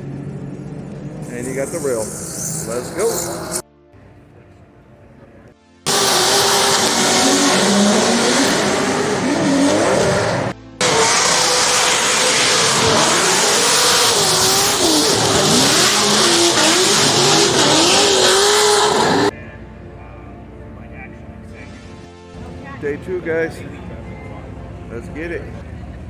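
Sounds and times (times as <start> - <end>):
car engines revving hard: 0.0 - 3.6, 5.9 - 19.3
tyres squealing: 1.2 - 3.6, 5.9 - 19.3.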